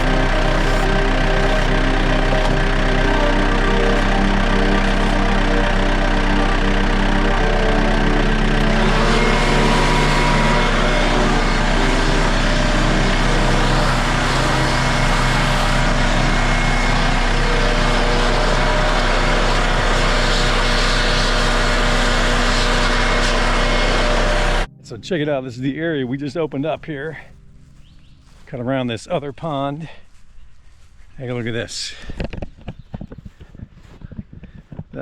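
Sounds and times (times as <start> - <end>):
tractor diesel engine running: 0.0 - 24.7.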